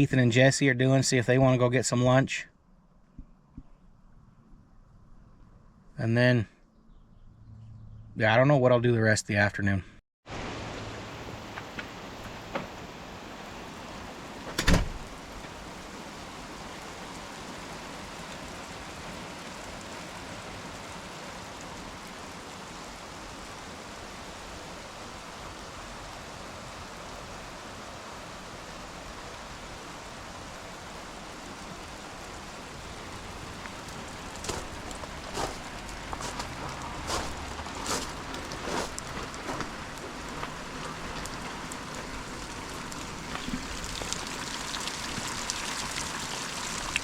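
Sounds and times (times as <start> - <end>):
steady rain falling: 10.3 - 47.0.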